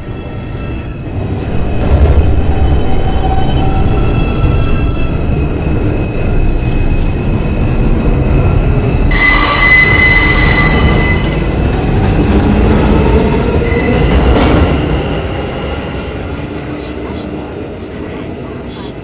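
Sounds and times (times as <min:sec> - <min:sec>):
subway train rumble: 0:00.0 - 0:19.0
high wheel squeal: 0:02.7 - 0:11.6, 0:13.6 - 0:16.1.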